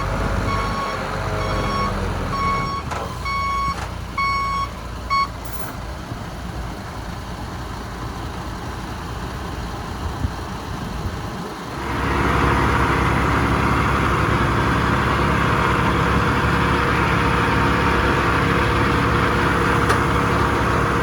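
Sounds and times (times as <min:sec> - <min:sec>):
reversing alarm beeping: 0:00.0 - 0:05.7
diesel engine running: 0:00.0 - 0:21.0.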